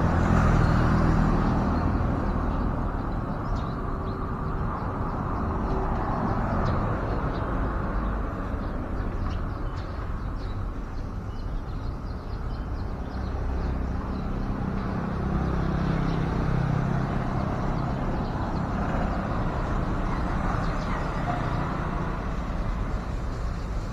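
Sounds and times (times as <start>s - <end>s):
vehicle engine hum passing: 0.0s - 3.7s, 12.9s - 23.9s
road traffic noise: 0.0s - 23.9s.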